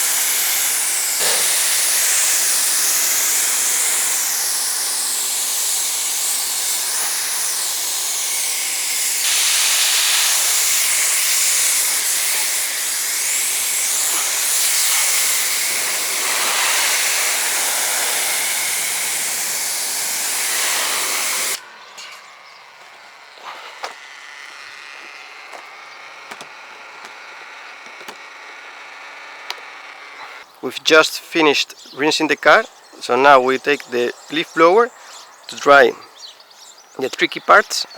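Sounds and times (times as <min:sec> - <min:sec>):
pressure washer water spray hissing: 0:00.0 - 0:21.8
faint motor hum: 0:00.0 - 0:30.8.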